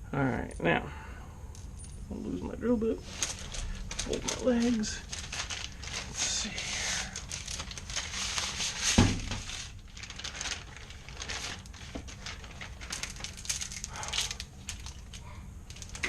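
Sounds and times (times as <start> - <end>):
vent hose crinkling: 1.5 - 16.0
thump: 9.0 - 9.4.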